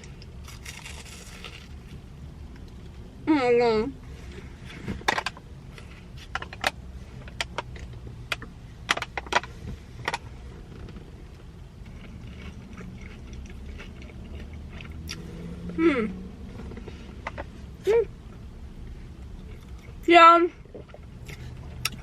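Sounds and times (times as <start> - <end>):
crisp batter crunching: 0.0 - 2.0
person humming: 15.7 - 16.2.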